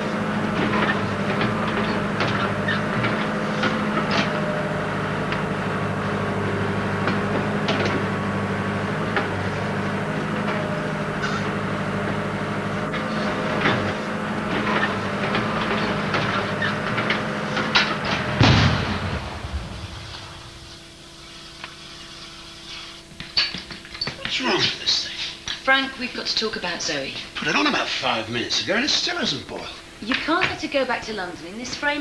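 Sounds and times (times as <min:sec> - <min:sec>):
digger diesel engine running: 0:00.0 - 0:21.0.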